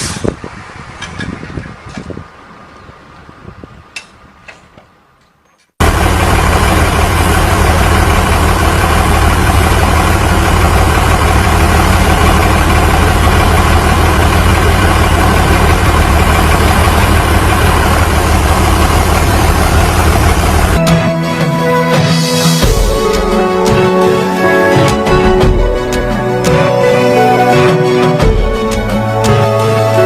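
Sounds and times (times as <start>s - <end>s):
vehicle engine running steadily: 5.8s - 20.8s.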